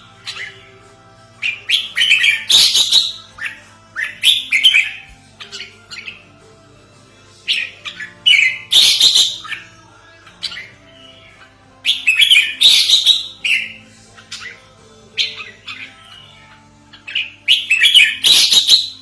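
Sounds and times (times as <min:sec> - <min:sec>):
bird calling in chirpy bursts: 0:11.9 - 0:13.7.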